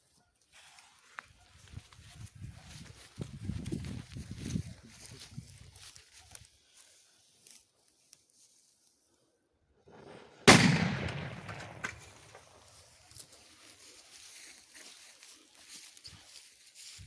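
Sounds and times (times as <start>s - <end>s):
firecracker bang: 9.9s - 12.4s.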